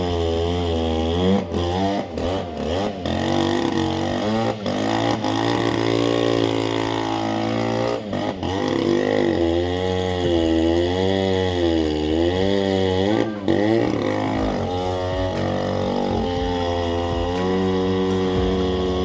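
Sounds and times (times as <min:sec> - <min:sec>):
chainsaw cutting log: 0:00.0 - 0:19.0.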